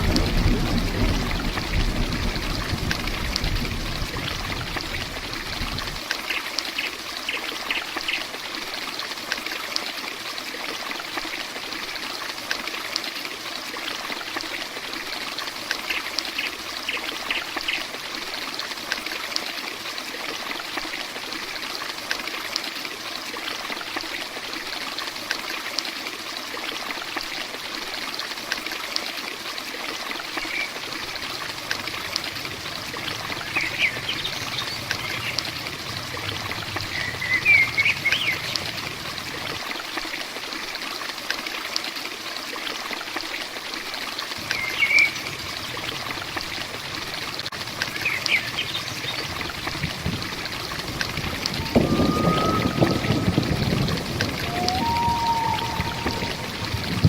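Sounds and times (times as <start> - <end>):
low thunder rumble: 0.0 - 6.0, 30.8 - 39.7, 44.4 - 57.0
heavy rain hissing: 0.0 - 6.1, 30.3 - 40.0, 44.4 - 57.0
dripping water: 0.0 - 24.5, 26.8 - 57.0.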